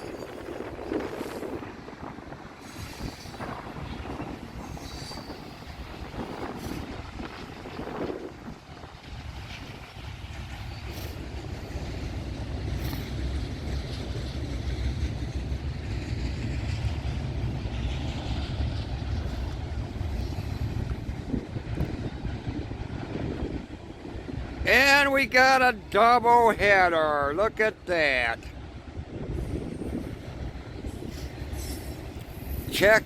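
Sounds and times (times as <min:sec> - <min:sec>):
wind on microphone: 0:00.0 - 0:09.9, 0:19.0 - 0:24.6, 0:28.8 - 0:32.6
train passing rumble: 0:00.0 - 0:33.0.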